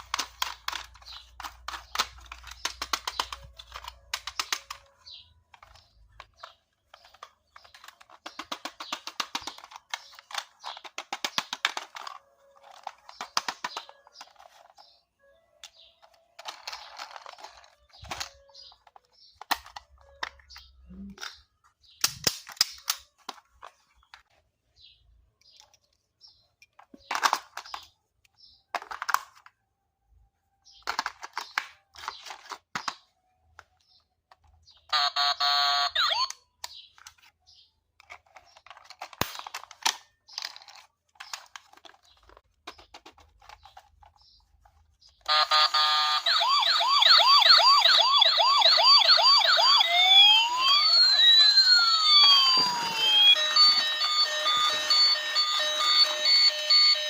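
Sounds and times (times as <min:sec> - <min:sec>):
toy electronic siren: 0:34.8 - 0:36.4, 0:45.2 - 0:57.0.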